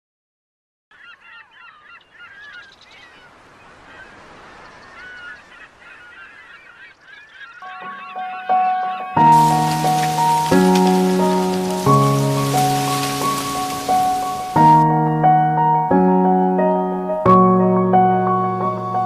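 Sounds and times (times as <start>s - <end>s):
flock of birds calling: 0.9s - 14.8s
music with held tones: 7.6s - 19.0s.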